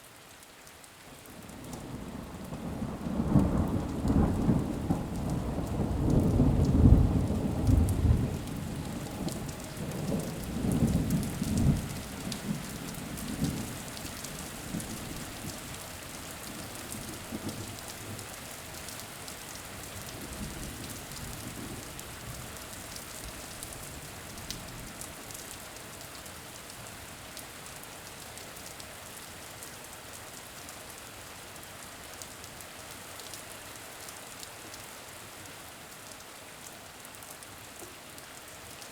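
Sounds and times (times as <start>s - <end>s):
steady rain: 0.0s - 38.9s
rolling thunder: 2.5s - 12.7s.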